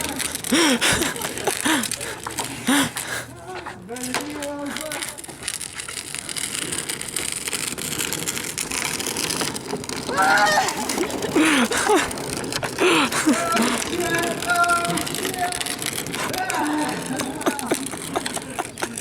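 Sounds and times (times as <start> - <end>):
rushing scraping noise: 3.9 - 19.0
person shouting: 10.1 - 10.9.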